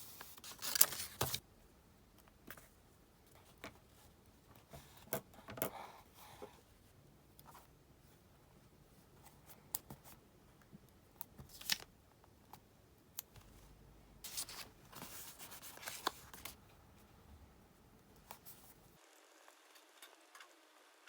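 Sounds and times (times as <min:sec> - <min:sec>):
paper rustling: 0:00.0 - 0:01.4, 0:11.4 - 0:11.9, 0:14.2 - 0:16.6.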